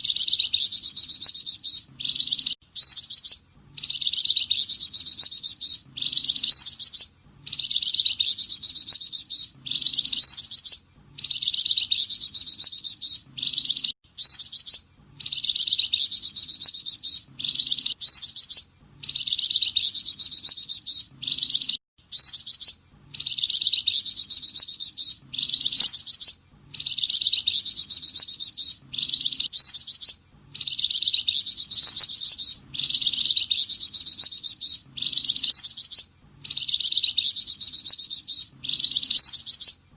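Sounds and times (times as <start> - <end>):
songbird high trilled phrases: 0.0 - 39.8.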